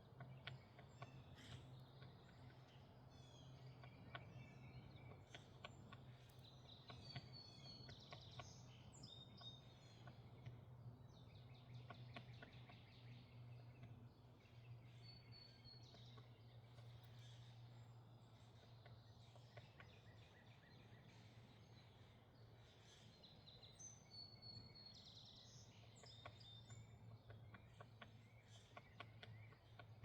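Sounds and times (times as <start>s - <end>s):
faint songbirds chirping: 0.0s - 30.0s
low steady hum: 0.0s - 30.0s.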